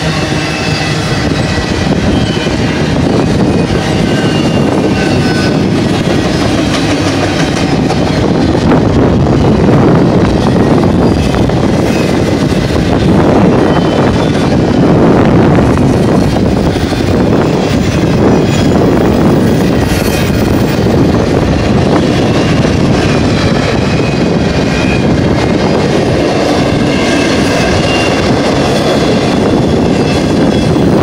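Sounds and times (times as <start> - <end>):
steel wheels rumbling on rail: 0.0 - 31.0
high-pitched wheel squeaks: 3.4 - 5.7, 11.0 - 12.2, 13.5 - 14.9, 26.9 - 30.9.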